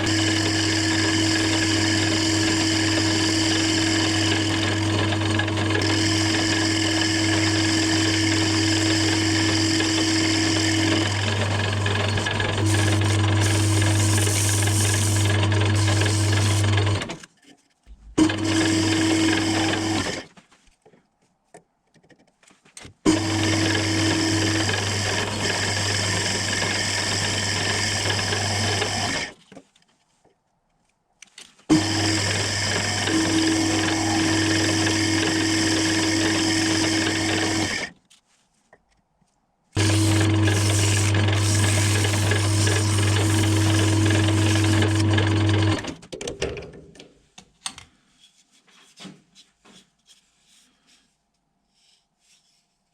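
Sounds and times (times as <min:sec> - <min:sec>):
small electric motor humming: 0:12.6 - 0:17.0, 0:31.9 - 0:37.8, 0:39.8 - 0:45.5.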